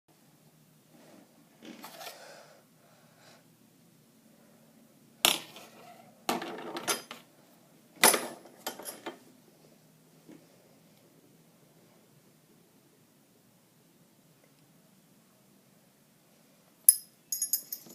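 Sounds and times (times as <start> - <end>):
metal parts clinking and rattling: 16.9 - 17.9.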